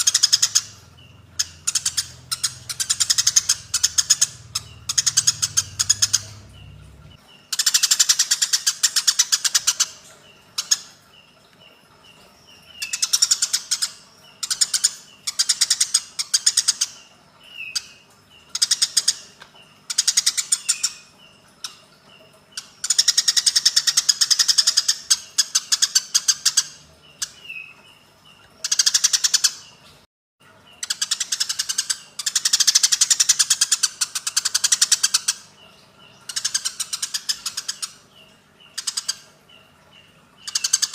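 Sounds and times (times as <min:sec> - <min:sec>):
sparrows harsh chattering: 0:00.0 - 0:29.8, 0:30.6 - 0:40.9.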